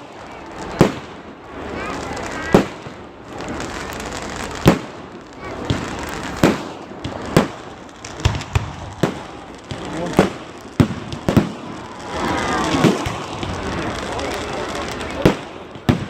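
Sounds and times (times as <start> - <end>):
crowd voices: 0.0 - 16.0
fireworks exploding: 0.0 - 16.0.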